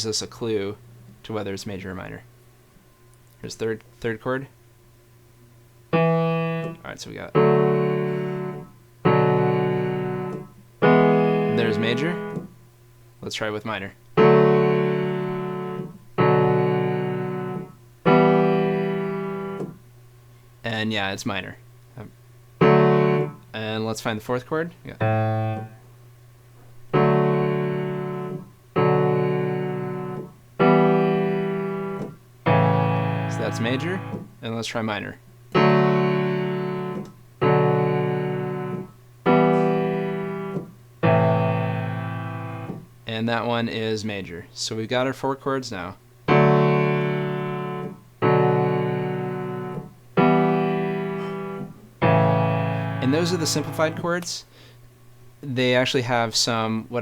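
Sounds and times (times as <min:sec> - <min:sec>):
piano chords ringing: 0:05.9 - 0:12.5, 0:14.2 - 0:19.8, 0:22.6 - 0:23.5, 0:24.8 - 0:25.8, 0:26.8 - 0:34.4, 0:35.5 - 0:42.9, 0:46.2 - 0:54.2.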